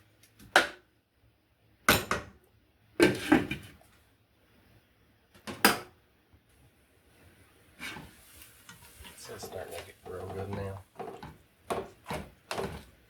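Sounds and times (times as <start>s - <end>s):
cookware clattering and scraping: 7.8s - 12.9s.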